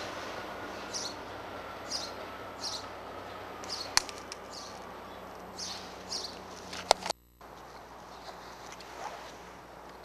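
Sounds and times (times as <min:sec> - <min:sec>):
background hum: 0:00.0 - 0:10.0
small bird chirping: 0:00.8 - 0:01.2, 0:01.9 - 0:06.5.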